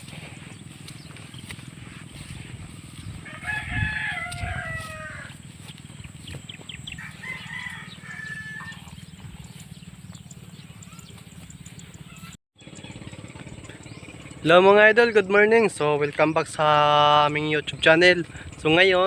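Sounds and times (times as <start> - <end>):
steady low hum: 0.0 - 18.8
rooster crowing: 2.2 - 5.7, 6.3 - 9.8.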